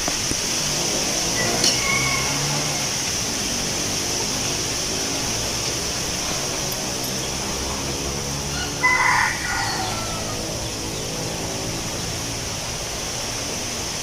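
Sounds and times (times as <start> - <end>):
wind rustling leaves: 0.0 - 14.0
rooster crowing: 1.2 - 3.1, 8.4 - 10.8.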